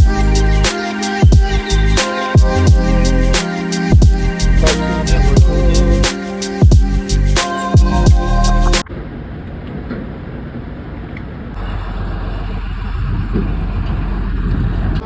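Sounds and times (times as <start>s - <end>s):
hip-hop music with deep bass: 0.0s - 8.8s
road noise: 8.8s - 15.0s
semi truck engine rumble: 11.6s - 15.0s.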